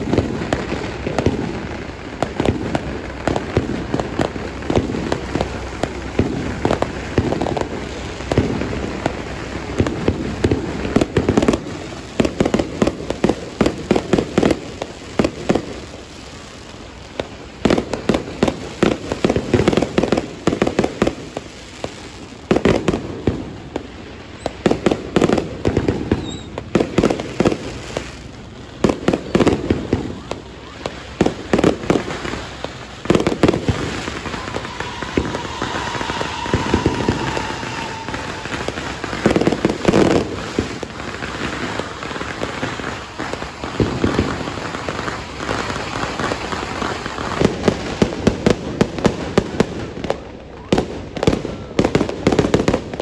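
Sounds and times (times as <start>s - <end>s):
fireworks crackling and banging: 0.0s - 53.0s.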